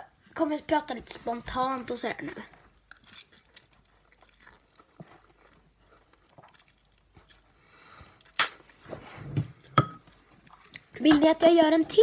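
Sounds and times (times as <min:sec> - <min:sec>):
chewing and mouth sounds: 0:01.1 - 0:08.9, 0:09.5 - 0:11.1.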